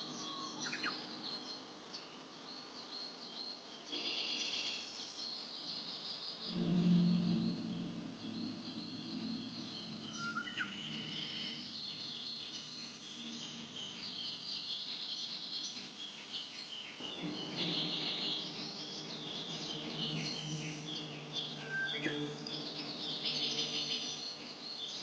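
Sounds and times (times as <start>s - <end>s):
insects: 0.0s - 25.0s
small birds chirping: 0.0s - 25.0s
low steady hum: 6.4s - 14.2s, 17.0s - 24.8s.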